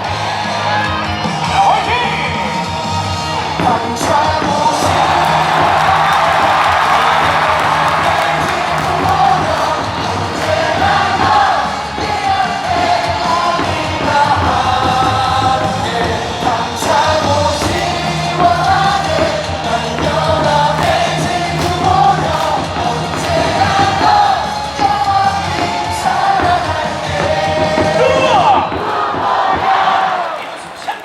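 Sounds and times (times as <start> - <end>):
stadium crowd singing in unison: 0.0 - 31.0
amplified music: 4.8 - 28.5.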